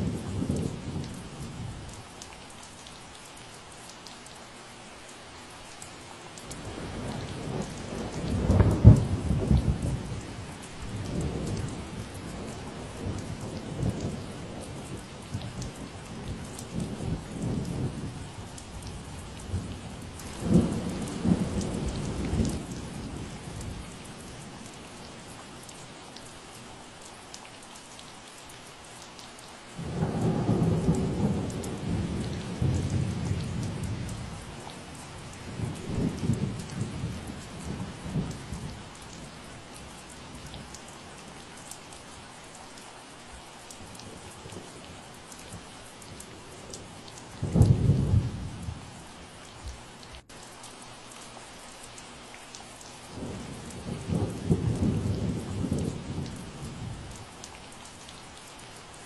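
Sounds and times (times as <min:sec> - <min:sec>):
steady rain falling: 0:00.0 - 0:59.0
thunder rumbling: 0:19.5 - 0:24.0, 0:29.8 - 0:38.8, 0:47.4 - 0:48.9, 0:53.1 - 0:57.3.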